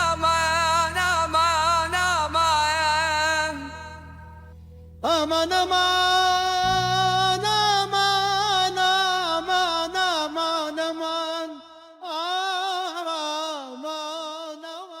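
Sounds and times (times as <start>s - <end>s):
low sustained drone: 0.0s - 10.6s
man singing with vibrato: 0.0s - 15.0s.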